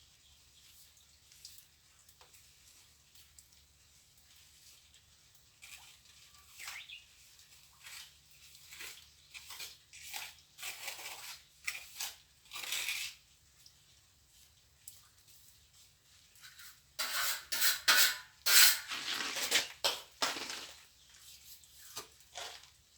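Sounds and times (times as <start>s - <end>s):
trowel scraping cement mortar: 7.6s - 13.3s, 16.4s - 22.8s.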